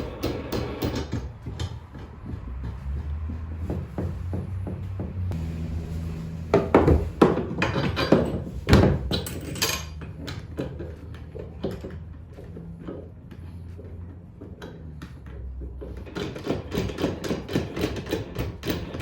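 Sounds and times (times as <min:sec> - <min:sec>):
tools clinking and knocking: 0:00.0 - 0:02.8, 0:07.2 - 0:13.1
steady low hum: 0:04.2 - 0:07.4.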